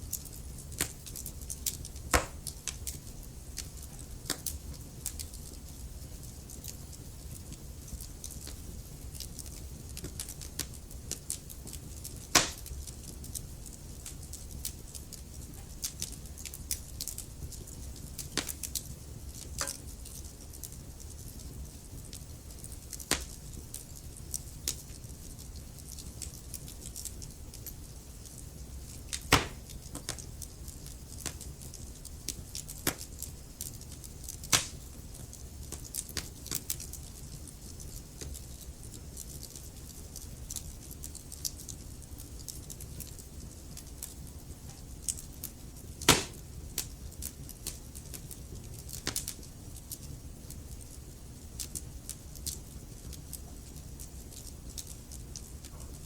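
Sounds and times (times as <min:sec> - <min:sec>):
fire crackles: 0:00.0 - 0:56.0
low rumble of burning wood: 0:00.0 - 0:56.0
sharp pops of fire: 0:00.1 - 0:05.6, 0:06.2 - 0:20.4, 0:22.0 - 0:23.4, 0:28.3 - 0:33.8, 0:34.4 - 0:36.8, 0:46.0 - 0:49.4.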